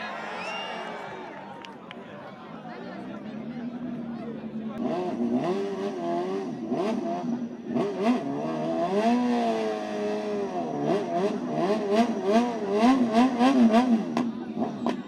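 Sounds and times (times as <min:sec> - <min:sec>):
motorcycle engine revving: 0:03.8 - 0:15.0.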